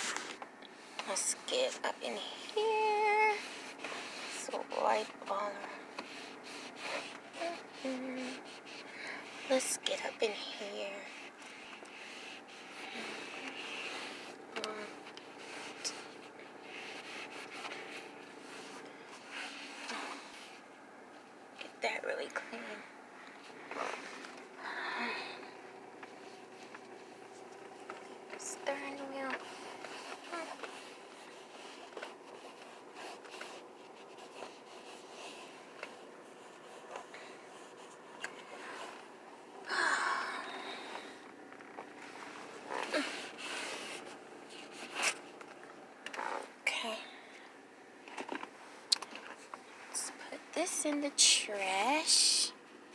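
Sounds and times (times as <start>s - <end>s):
wipe rubbing surfaces: 2.6s - 9.7s.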